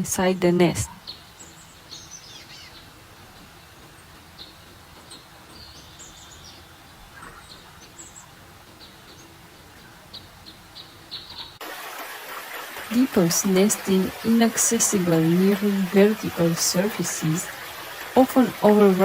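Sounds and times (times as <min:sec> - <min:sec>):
rushing water hiss: 0:00.0 - 0:19.0
chicks begging chirps: 0:00.4 - 0:11.6.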